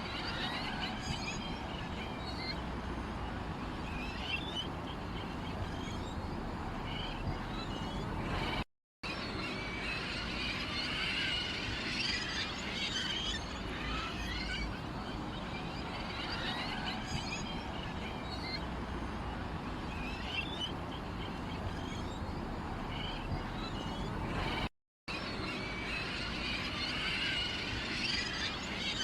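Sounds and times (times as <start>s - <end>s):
sparrows chirping: 3.6s - 8.6s, 19.9s - 24.6s.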